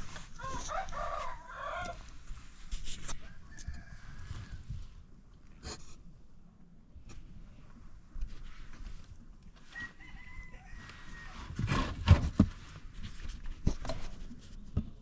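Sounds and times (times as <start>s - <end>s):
rooster crowing: 0.4s - 2.1s, 3.2s - 4.7s, 9.7s - 11.6s.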